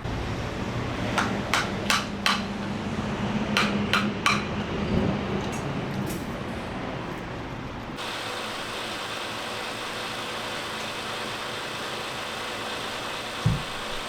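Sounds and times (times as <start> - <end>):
vehicle running hiss and hum: 0.0 - 14.0
dull thump: 13.4 - 14.0.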